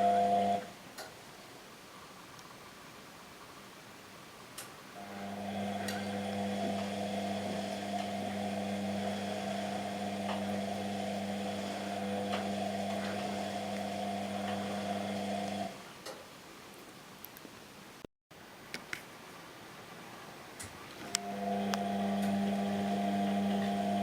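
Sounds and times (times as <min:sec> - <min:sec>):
washing machine motor humming: 0:00.0 - 0:00.7, 0:05.0 - 0:15.8, 0:21.1 - 0:24.0.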